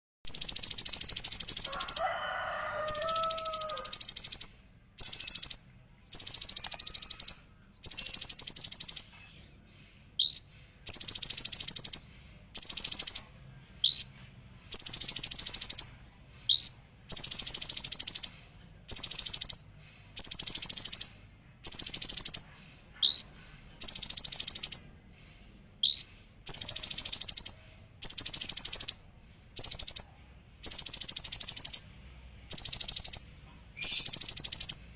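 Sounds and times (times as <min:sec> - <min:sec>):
short rising bird chirps: 0:00.3 - 0:31.9, 0:32.5 - 0:34.9
lower warbled bird phrase: 0:00.4 - 0:05.6, 0:06.2 - 0:08.3.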